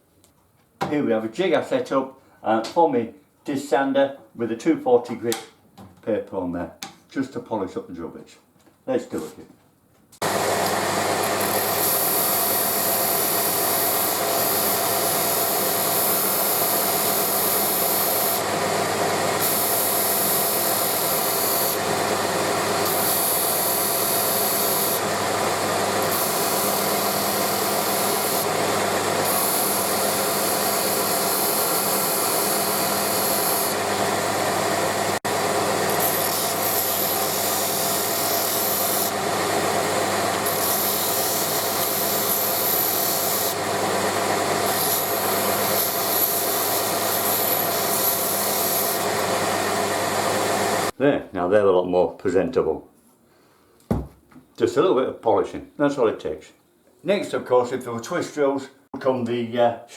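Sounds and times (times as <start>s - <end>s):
sander grinding hiss: 10.2s - 51.0s.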